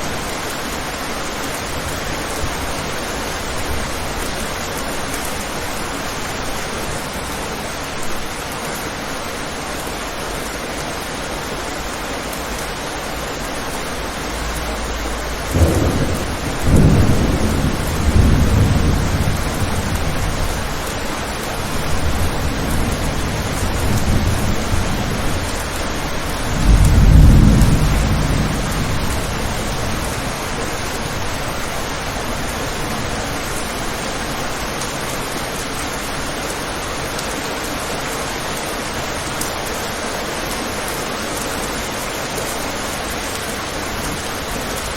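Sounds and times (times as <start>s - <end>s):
steady rain falling: 0.0s - 44.9s
rolling thunder rumble: 14.4s - 33.6s.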